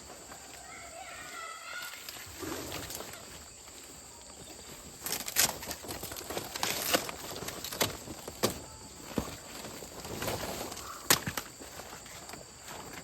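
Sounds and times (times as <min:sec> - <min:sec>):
rustling: 0:00.0 - 0:13.0.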